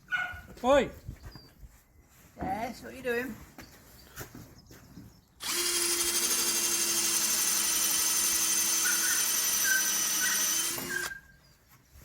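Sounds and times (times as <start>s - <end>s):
power drill running: 5.4s - 11.2s.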